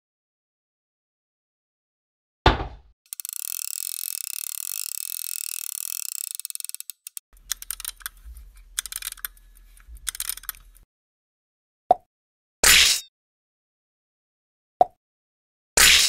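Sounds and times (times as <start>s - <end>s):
screwdriver clicking: 3.1s - 10.8s
small metal parts clicking: 3.1s - 10.8s.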